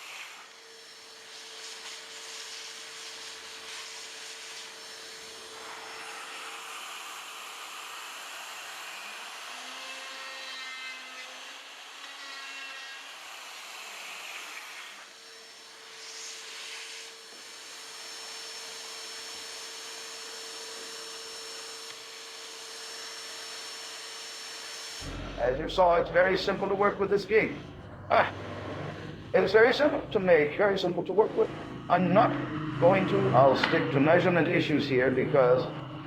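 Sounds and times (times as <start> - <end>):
router whining cutting wood: 0.0 - 36.0.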